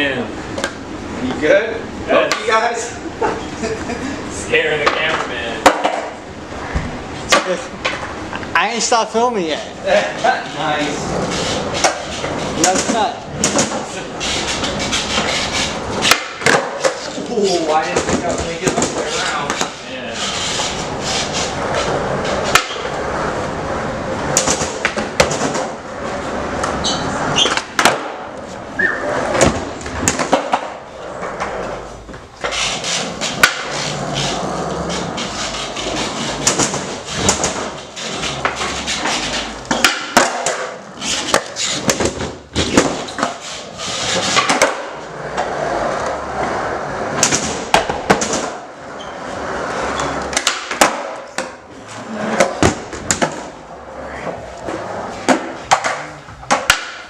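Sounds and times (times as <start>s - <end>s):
skateboards rolling on hard floor: 0.0s - 57.0s
skateboard clacks and slaps: 4.8s - 6.2s, 6.8s - 8.2s, 11.2s - 17.2s, 17.8s - 23.1s, 24.2s - 25.8s, 26.5s - 48.7s, 49.4s - 57.0s.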